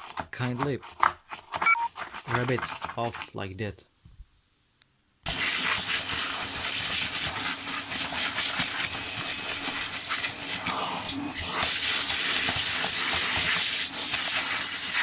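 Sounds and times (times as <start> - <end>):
vacuum cleaner hissing: 5.3 - 15.0.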